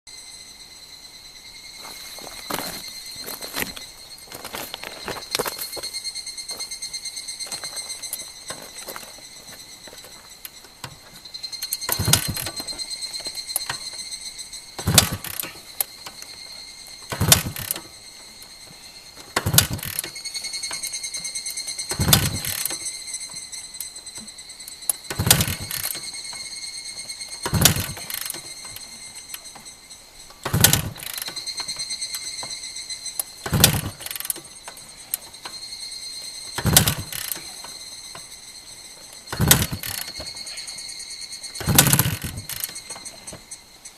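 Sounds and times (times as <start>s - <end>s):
high steady ringing tone: 0.1s - 43.9s
motorcycle kickstart thumps: 1.9s - 5.9s, 7.4s - 14.0s, 14.8s - 16.4s, 17.0s - 17.9s, 19.2s - 22.9s, 25.1s - 29.7s, 30.4s - 32.6s, 33.2s - 35.6s, 36.4s - 38.3s, 39.0s - 40.7s, 41.5s - 43.6s.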